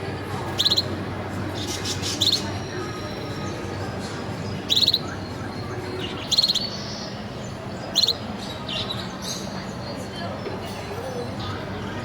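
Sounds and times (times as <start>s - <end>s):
canary trills: 0.5s - 0.9s, 1.6s - 2.6s, 4.7s - 5.2s
soft canary chirps: 0.5s - 0.9s, 1.5s - 2.6s, 4.4s - 9.8s.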